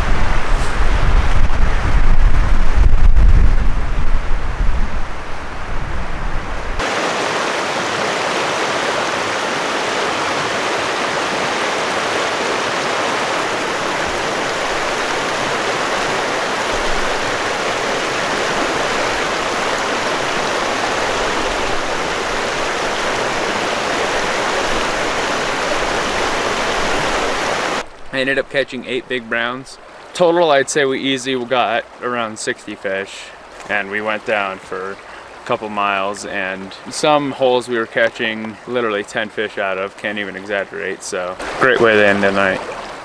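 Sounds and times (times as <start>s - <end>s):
wind rumble on microphone: 0.0s - 6.8s
flowing river water: 0.0s - 43.0s.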